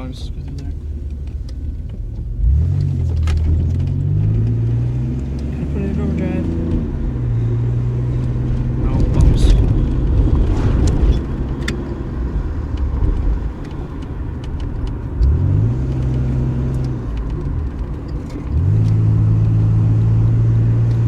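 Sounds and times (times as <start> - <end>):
car engine from inside: 0.0 - 21.0.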